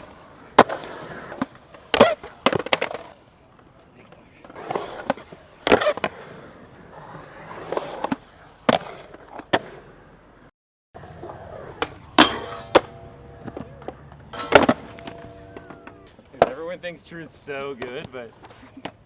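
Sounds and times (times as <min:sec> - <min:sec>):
skateboard popping and landing: 0:00.0 - 0:03.2, 0:04.1 - 0:09.8, 0:11.0 - 0:16.6
skateboard wheels rolling: 0:00.0 - 0:19.0.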